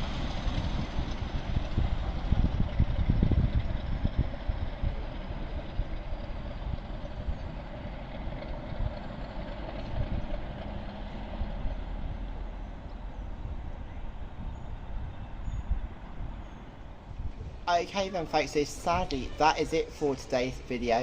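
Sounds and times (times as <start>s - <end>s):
train rumbling by: 0.0s - 21.0s.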